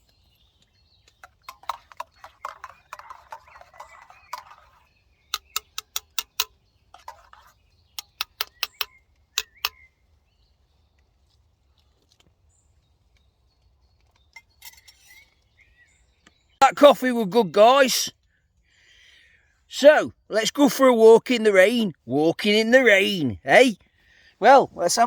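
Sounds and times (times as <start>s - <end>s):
faint high bird chirps: 0.0s - 11.0s, 12.6s - 16.6s
sharp clicks: 5.3s - 6.5s, 8.0s - 9.8s.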